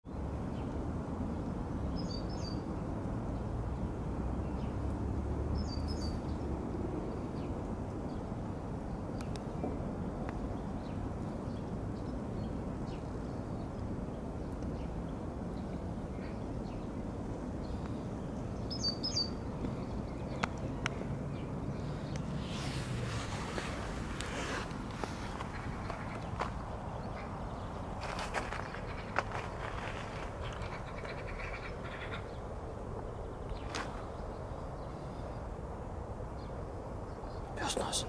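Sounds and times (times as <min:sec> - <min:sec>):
low outdoor rumble: 0:00.1 - 0:38.0
small bird chirping: 0:17.6 - 0:27.9.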